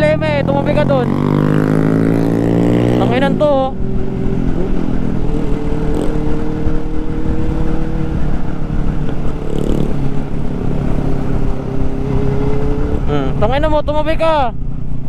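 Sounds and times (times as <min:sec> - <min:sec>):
motorcycle engine cruising: 0:00.0 - 0:15.0
wind rumble: 0:00.0 - 0:15.0.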